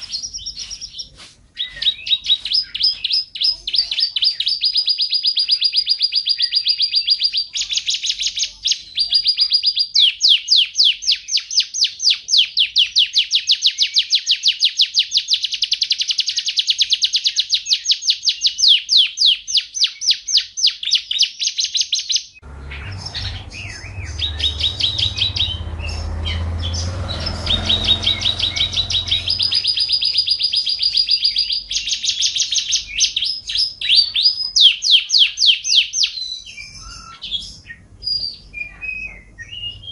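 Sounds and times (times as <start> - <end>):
bird singing trills: 0.0 - 39.9
low rumbling noise with hum: 22.4 - 31.7.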